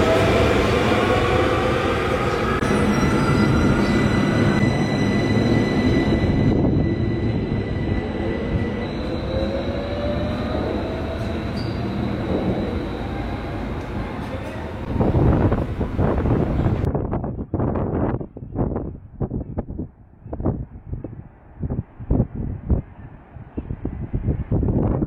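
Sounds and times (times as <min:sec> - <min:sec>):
tram motors whining: 0:00.0 - 0:16.9
high thin squeal: 0:11.4 - 0:13.2.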